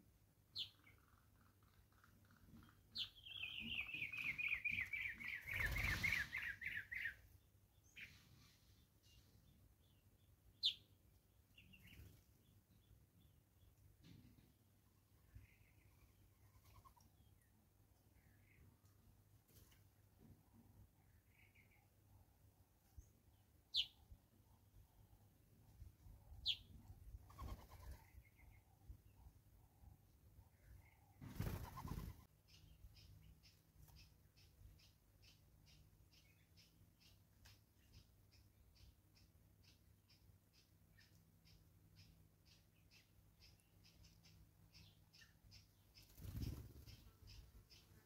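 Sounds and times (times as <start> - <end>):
bird whistled calls: 3.3 - 7.2.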